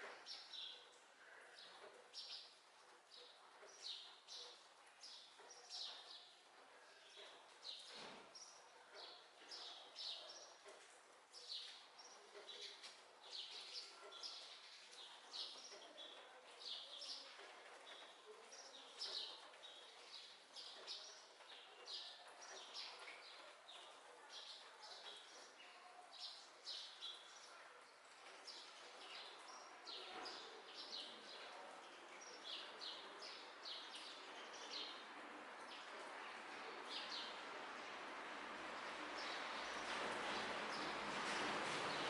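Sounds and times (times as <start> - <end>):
small birds chirping: 7.0 - 37.4.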